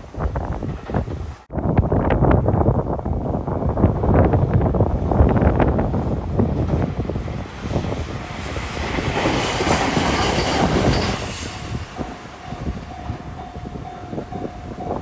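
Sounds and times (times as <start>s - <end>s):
train wheels clacking over joints: 6.5s - 15.0s
level crossing warning bell: 10.3s - 15.0s.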